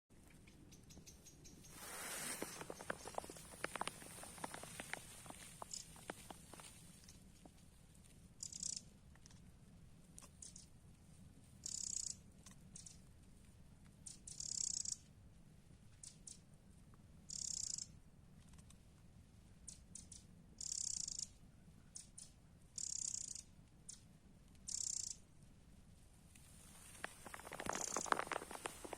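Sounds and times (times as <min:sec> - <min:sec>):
bird chirps: 0:00.3 - 0:07.2, 0:08.4 - 0:08.9, 0:11.6 - 0:12.2, 0:19.7 - 0:24.0, 0:24.7 - 0:25.2
songbird trilling: 0:00.7 - 0:06.4, 0:08.4 - 0:08.8, 0:24.7 - 0:25.2, 0:26.9 - 0:28.9.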